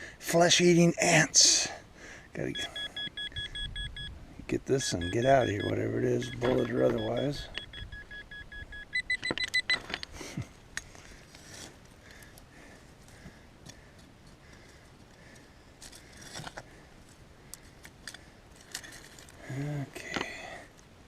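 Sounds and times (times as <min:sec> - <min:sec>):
metal detector beeping: 0:02.5 - 0:04.2, 0:04.8 - 0:10.1.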